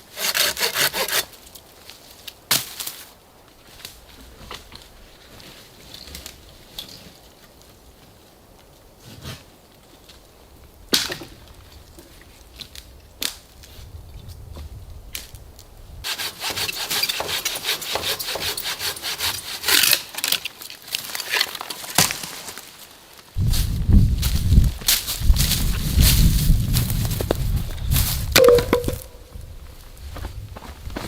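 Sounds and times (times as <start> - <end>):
hand saw strokes: 0.1 - 1.4, 16.1 - 20.4
wood knocking: 28.4 - 29.2.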